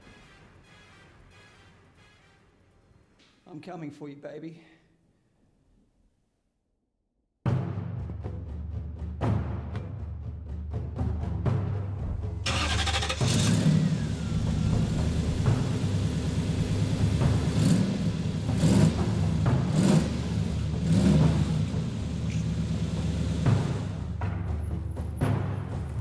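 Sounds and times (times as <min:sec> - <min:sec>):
car engine cranking and revving: 0:12.4 - 0:26.0.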